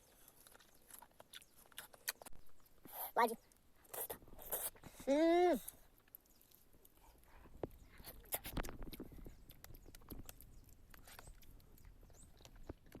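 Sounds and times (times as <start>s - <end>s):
person biting and chewing fruit: 0.0s - 3.2s, 3.8s - 13.0s.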